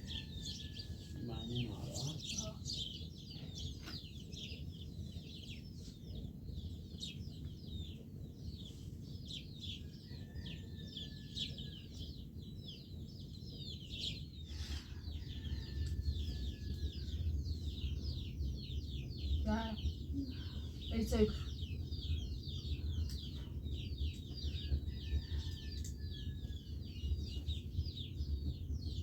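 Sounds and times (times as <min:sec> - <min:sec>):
small birds chirping: 0:00.0 - 0:29.0
low rumbling noise: 0:11.5 - 0:29.0.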